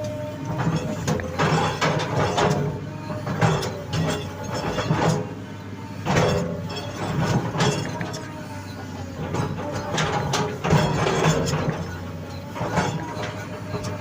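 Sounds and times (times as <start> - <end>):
metallic clanks and knocks: 0.0 - 5.4, 6.0 - 14.0
excavator diesel hum: 0.0 - 14.0
metal squealing on metal: 0.0 - 14.0.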